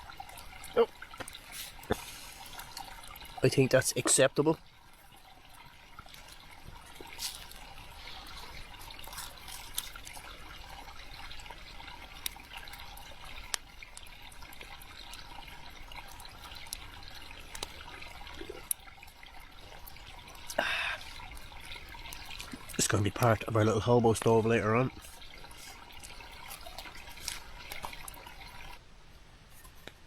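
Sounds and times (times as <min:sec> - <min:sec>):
campfire crackling: 0:00.0 - 0:28.8.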